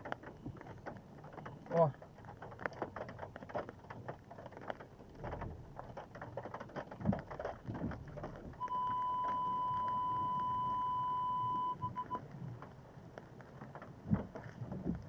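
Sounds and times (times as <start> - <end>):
water pattering and splashing: 0.0 - 15.0
high electronic beep: 8.6 - 12.2.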